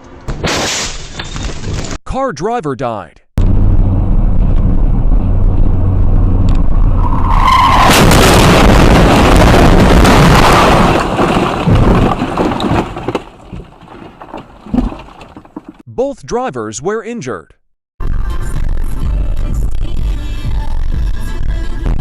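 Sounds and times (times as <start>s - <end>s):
tire squeal: 6.6s - 8.0s
skidding and crash: 6.6s - 15.8s.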